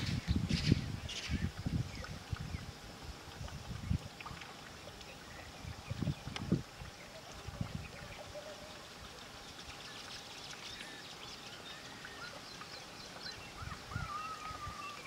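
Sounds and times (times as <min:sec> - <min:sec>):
birds chirping: 0:00.0 - 0:15.0
outdoor background hiss: 0:00.0 - 0:15.0.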